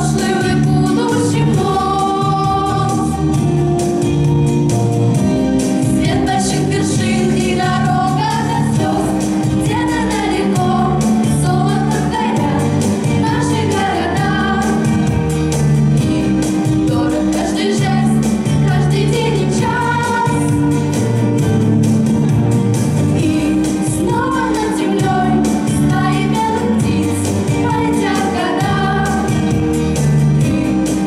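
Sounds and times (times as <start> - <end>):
women singing with instruments: 0.0 - 3.4, 6.0 - 15.2, 16.0 - 21.0, 23.2 - 29.6.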